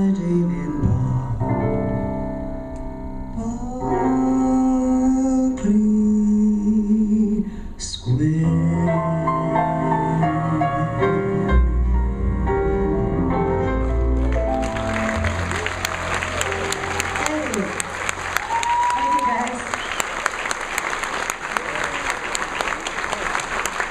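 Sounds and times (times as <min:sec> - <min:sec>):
piano: 0:00.0 - 0:23.9.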